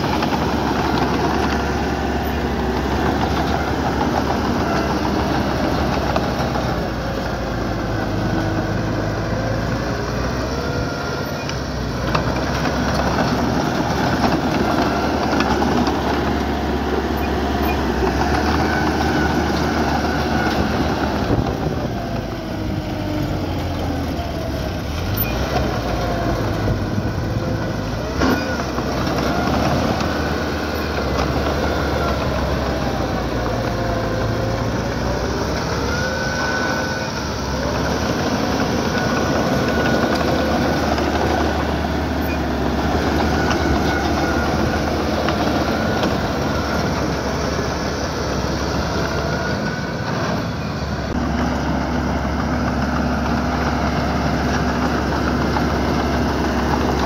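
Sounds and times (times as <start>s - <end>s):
bulldozer diesel engine running: 0.0s - 57.0s
steel tracks squealing and clanking: 10.4s - 22.0s, 23.2s - 51.1s.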